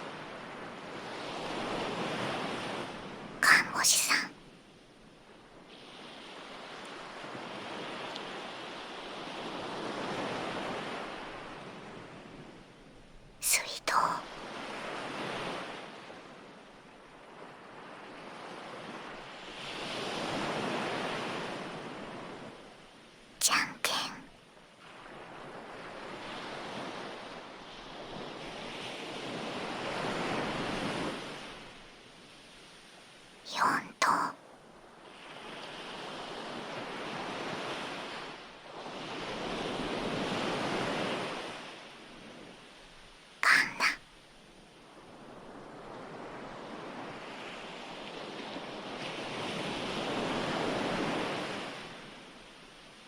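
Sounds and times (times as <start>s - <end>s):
ocean waves breaking on shore: 0.0s - 13.2s, 14.2s - 23.9s, 24.7s - 53.0s
ocean surf washing in: 35.2s - 42.4s, 45.0s - 52.4s.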